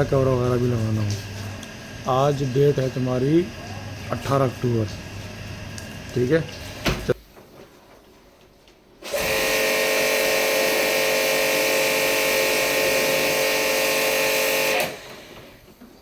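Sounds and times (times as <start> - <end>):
small electric motor whining: 9.1 - 15.4.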